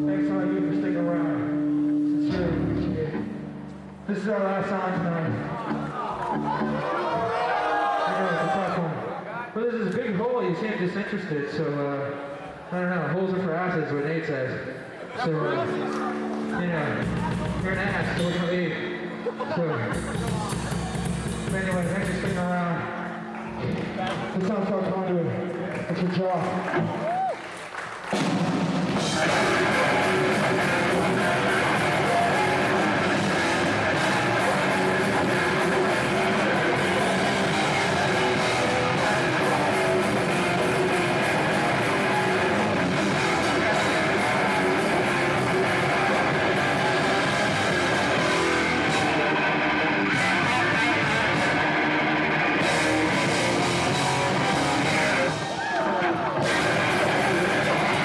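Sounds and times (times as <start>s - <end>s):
heavy distorted guitars: 0.0s - 7.6s, 15.2s - 25.4s, 28.1s - 58.0s
pounding drum kit: 17.0s - 18.4s, 19.9s - 22.6s, 28.1s - 55.6s, 56.3s - 58.0s.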